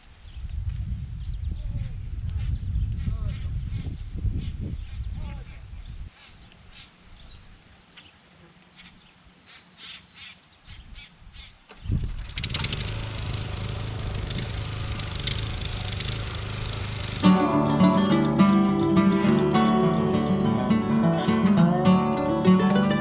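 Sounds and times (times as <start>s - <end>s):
garden tiller engine running: 12.2s - 23.0s.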